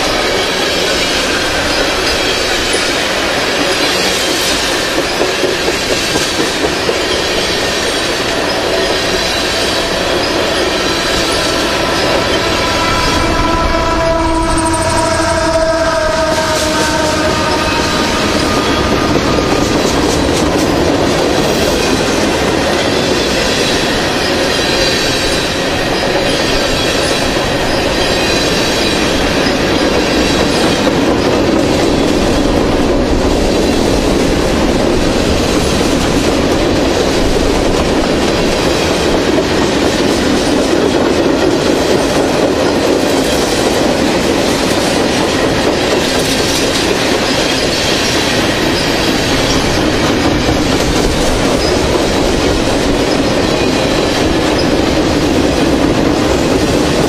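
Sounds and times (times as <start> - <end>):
freight train rumbling past: 0.0 - 57.0
locomotive horn: 9.8 - 20.3.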